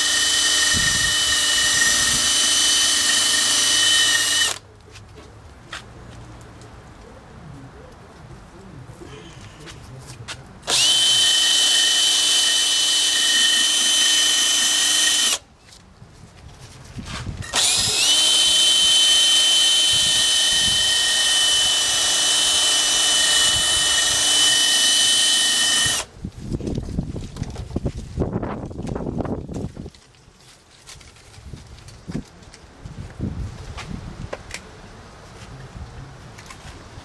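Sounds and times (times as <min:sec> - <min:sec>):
handheld power tool whining: 0:00.0 - 0:04.6, 0:10.6 - 0:15.4, 0:17.4 - 0:26.1.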